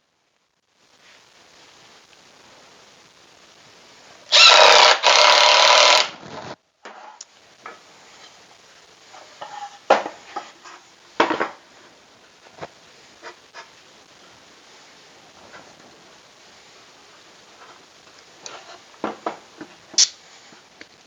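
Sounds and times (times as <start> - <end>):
power drill whining into wood: 4.3 - 6.2.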